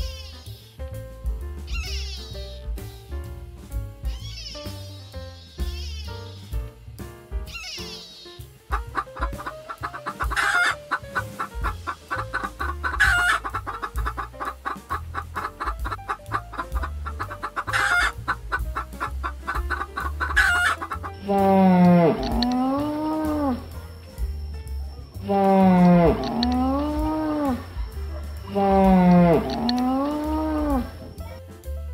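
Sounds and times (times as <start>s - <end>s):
light background music with beat: 0.0s - 31.9s
chickens clucking: 7.5s - 23.8s, 25.2s - 31.4s
long low animal call: 25.2s - 31.0s.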